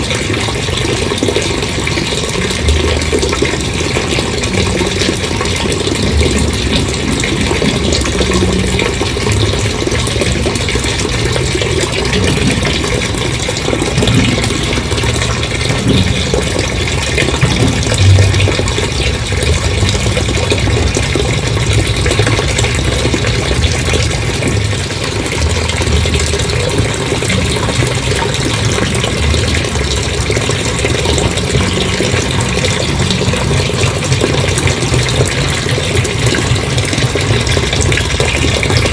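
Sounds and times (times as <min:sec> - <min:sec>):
water gushing from tank: 0:00.0 - 0:38.9
low rumble: 0:02.4 - 0:38.9.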